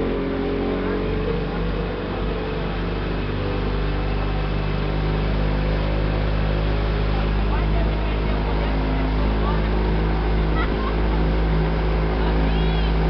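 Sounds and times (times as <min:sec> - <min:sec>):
speedboat engine droning: 0:00.0 - 0:13.0
water rushing: 0:00.0 - 0:13.0.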